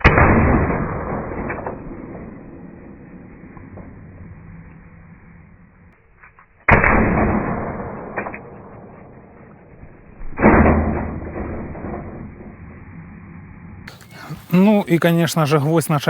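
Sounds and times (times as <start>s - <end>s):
air pistol shots: 0.0s - 4.0s, 6.6s - 9.4s.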